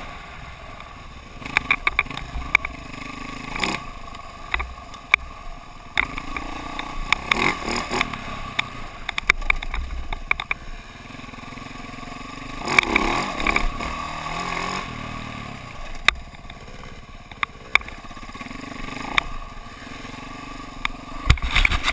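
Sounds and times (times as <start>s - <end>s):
dirt bike engine running: 0.0s - 21.9s
sharp clicks and clatter: 1.4s - 2.8s, 5.9s - 10.6s, 12.7s - 13.8s, 15.9s - 19.4s, 20.8s - 21.9s.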